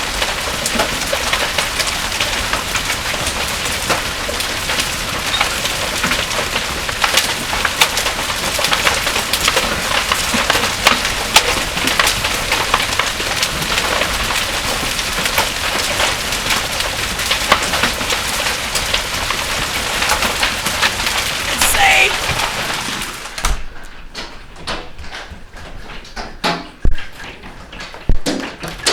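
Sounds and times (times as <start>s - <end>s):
hailstones striking hard surfaces: 0.0s - 21.5s
heavy rain pouring: 0.0s - 23.6s.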